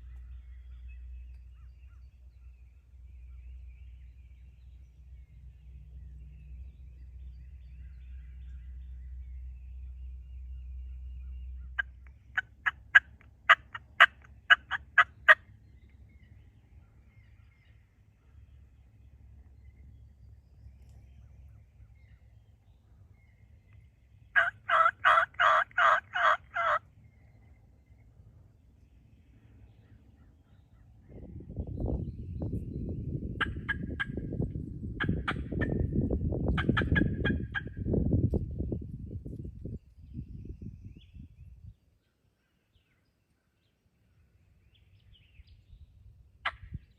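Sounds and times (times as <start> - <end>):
turkey yelping: 11.8 - 15.4, 24.4 - 26.8, 33.4 - 34.2, 36.6 - 37.7.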